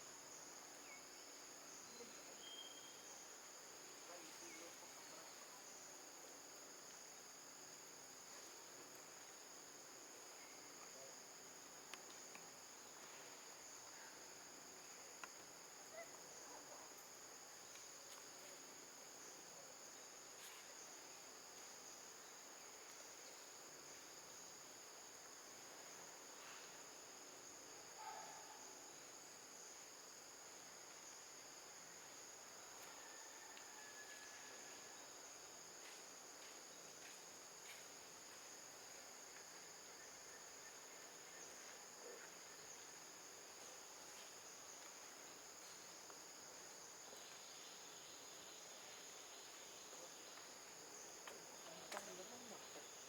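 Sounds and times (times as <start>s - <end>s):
insects trilling: 0.0s - 53.0s
faint clicks: 51.2s - 52.2s.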